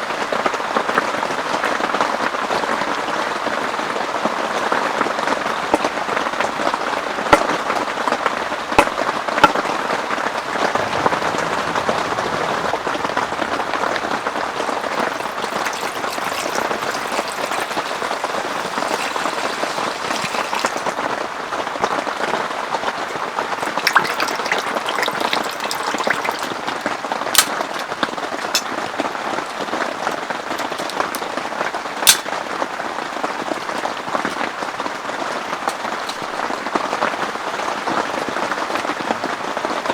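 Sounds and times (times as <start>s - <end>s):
heavy rain falling: 10.5s - 16.8s.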